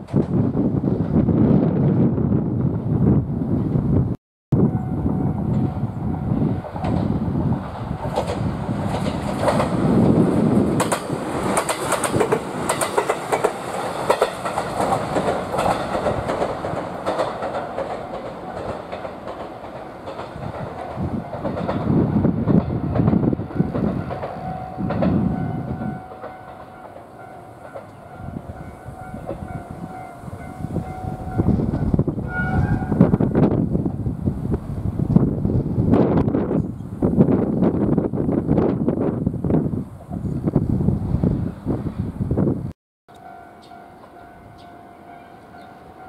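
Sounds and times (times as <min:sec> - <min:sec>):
train passing noise: 0:00.0 - 0:46.0
wheels clattering over rail joints: 0:06.7 - 0:28.2.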